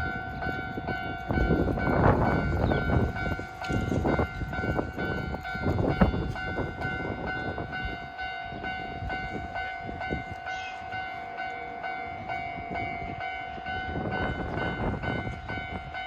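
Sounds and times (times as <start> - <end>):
train wheels clattering: 0.0 - 7.7
crossing warning bell ringing: 0.0 - 16.0.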